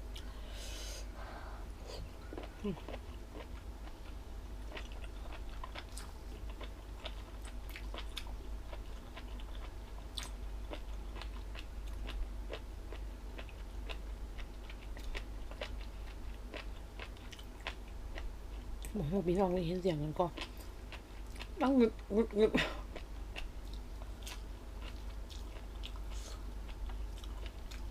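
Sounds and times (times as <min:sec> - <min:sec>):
low steady hum: 0:00.0 - 0:27.9
crunchy chewing: 0:02.2 - 0:19.0, 0:22.9 - 0:27.9.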